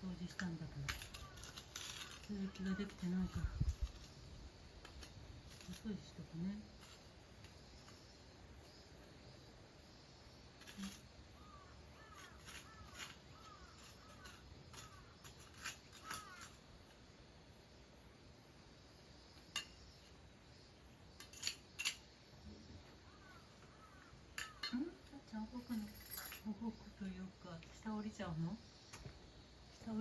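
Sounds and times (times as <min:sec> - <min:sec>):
bird calling: 0:22.8 - 0:25.0.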